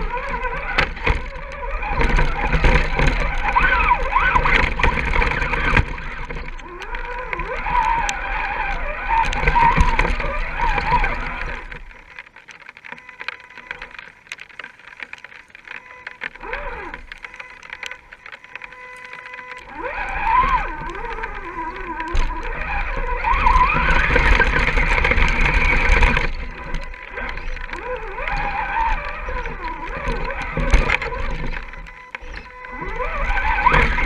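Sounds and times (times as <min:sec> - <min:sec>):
electric motor and gears whining: 0:00.0 - 0:34.0.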